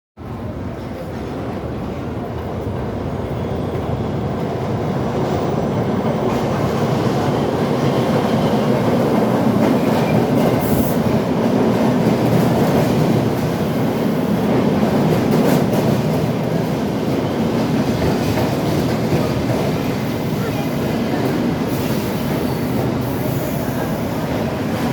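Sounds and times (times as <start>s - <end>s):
subway train rumbling on rails: 0.2s - 24.9s.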